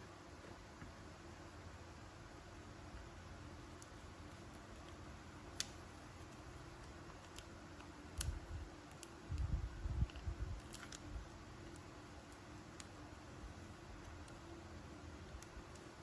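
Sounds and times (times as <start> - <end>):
small sharp clicks of packaging: 6.8 - 11.1.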